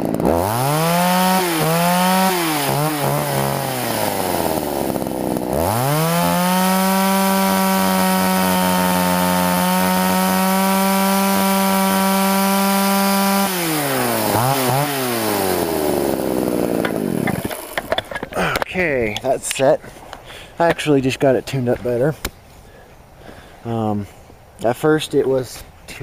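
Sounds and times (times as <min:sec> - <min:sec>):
chainsaw engine revving: 0:00.0 - 0:18.6.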